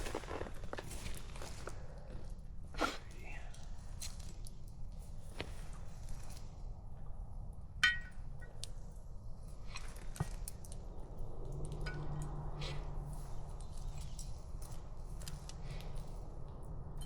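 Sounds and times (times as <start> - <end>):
metal cookware clink: 7.8 - 8.1
low rumble: 10.8 - 17.0.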